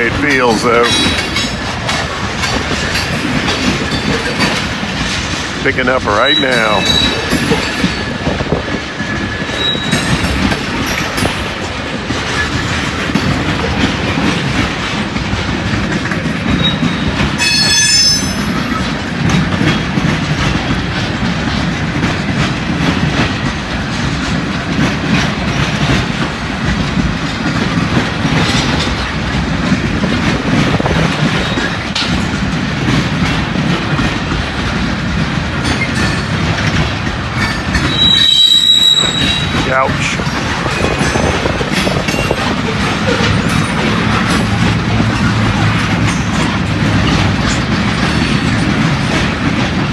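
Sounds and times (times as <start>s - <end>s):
train wheels clacking over rails: 0.0s - 49.9s
wind on microphone: 6.8s - 17.3s, 25.8s - 49.9s
high-pitched wheel squeal: 37.8s - 39.7s.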